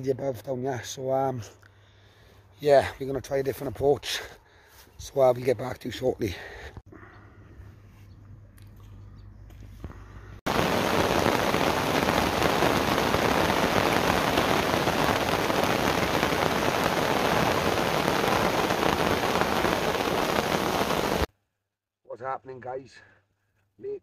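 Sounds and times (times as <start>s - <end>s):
heavy rain: 10.5s - 21.3s.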